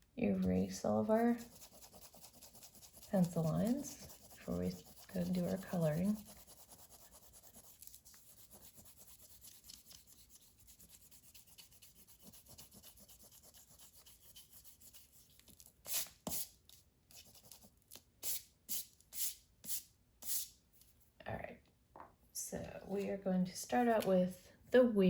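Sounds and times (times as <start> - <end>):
eraser rubbing on paper: 1.0 - 16.5.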